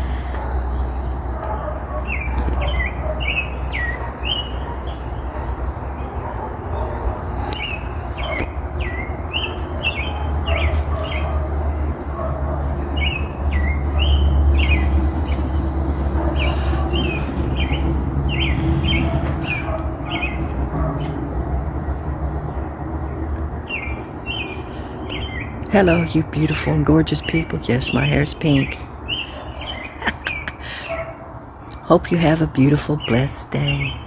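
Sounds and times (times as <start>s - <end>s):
songbirds chirping: 0.0s - 34.0s
low rumble: 6.4s - 25.7s.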